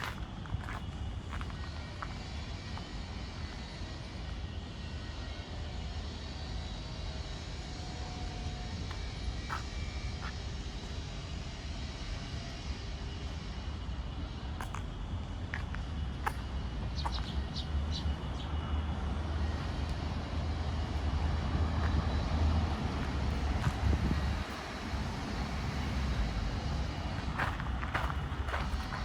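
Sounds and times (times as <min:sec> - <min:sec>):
city traffic rumble: 0:00.0 - 0:29.0.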